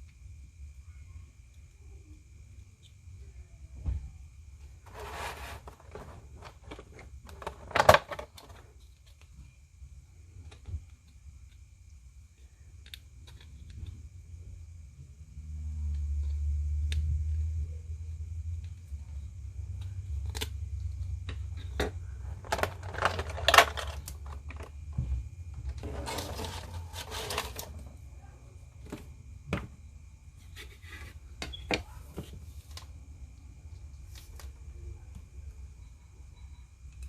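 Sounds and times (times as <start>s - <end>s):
packaging rustling: 22.4s - 24.7s.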